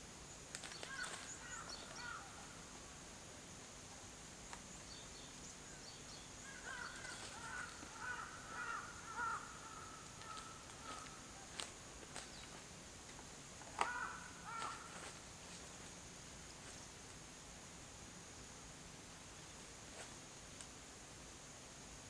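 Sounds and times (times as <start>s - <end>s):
bird harsh calls: 0.8s - 2.4s, 6.4s - 11.5s, 13.8s - 15.1s.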